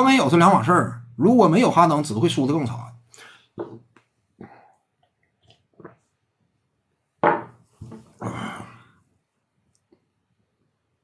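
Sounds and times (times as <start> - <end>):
man clearing throat: 8.2 - 8.8
breathy exhale: 8.2 - 9.0.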